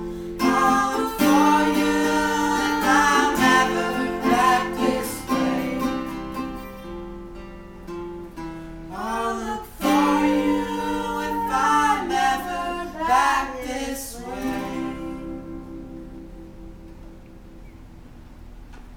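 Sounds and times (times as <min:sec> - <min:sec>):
person singing: 0:00.0 - 0:06.4, 0:08.9 - 0:16.0
acoustic guitar: 0:00.0 - 0:18.9.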